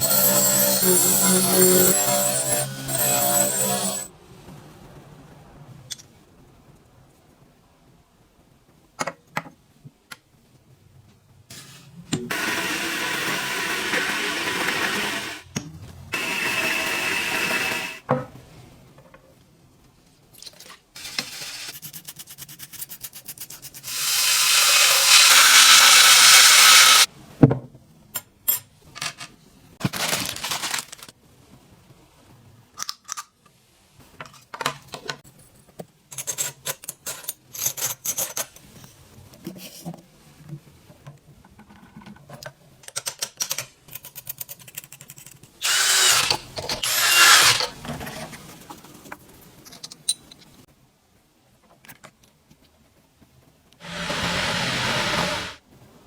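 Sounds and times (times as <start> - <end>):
power tool running: 0.0 - 4.1, 12.3 - 15.4, 16.2 - 18.0, 23.9 - 27.1, 45.6 - 47.7, 53.8 - 55.6.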